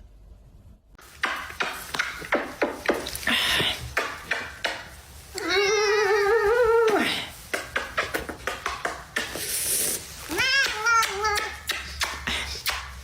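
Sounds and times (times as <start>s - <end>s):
cat meowing: 5.4s - 7.0s, 10.2s - 11.7s.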